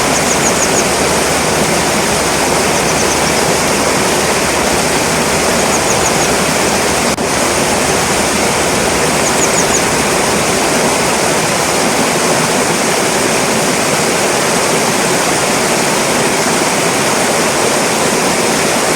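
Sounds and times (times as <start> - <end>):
bird calling high and quick: 0.0 - 7.1, 8.1 - 10.9
stream water rushing: 0.0 - 18.9.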